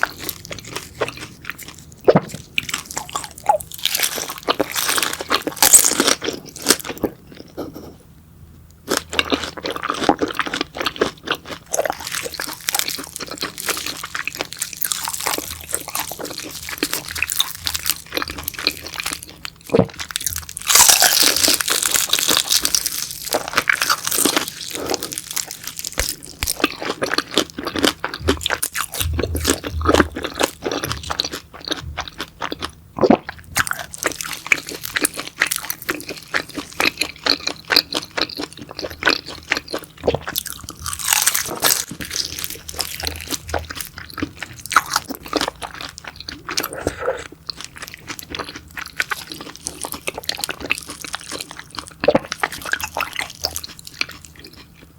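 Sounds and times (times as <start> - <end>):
crunching and chewing crispy food: 0.0 - 8.0, 8.8 - 54.9.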